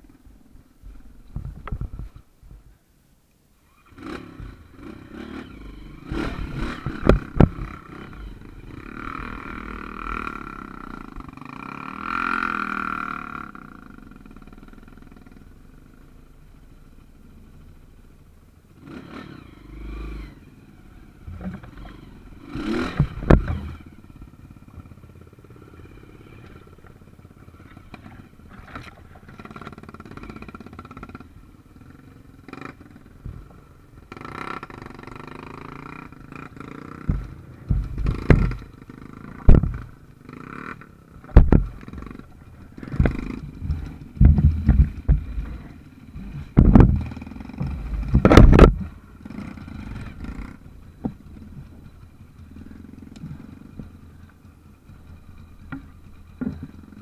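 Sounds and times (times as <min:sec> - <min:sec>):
motorcycle engine revving: 0:03.6 - 0:17.9, 0:18.7 - 0:57.0
loud knocks and thumps: 0:37.1 - 0:38.6, 0:39.4 - 0:39.9, 0:41.3 - 0:41.8, 0:42.8 - 0:45.7, 0:46.3 - 0:48.9.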